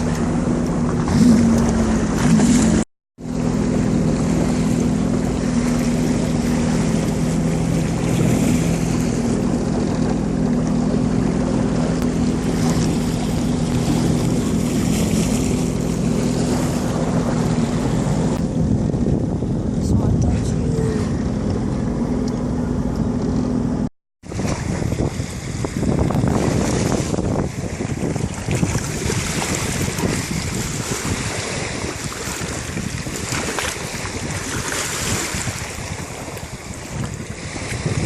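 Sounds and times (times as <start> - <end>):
rushing water: 0.0 - 22.2, 24.2 - 38.0
jet ski engine running: 0.0 - 38.0
wind noise: 11.7 - 23.6, 24.2 - 38.0.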